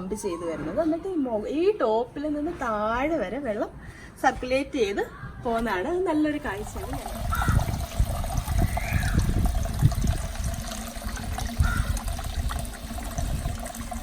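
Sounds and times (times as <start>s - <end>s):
fountain water trickling and splashing: 6.4s - 14.0s.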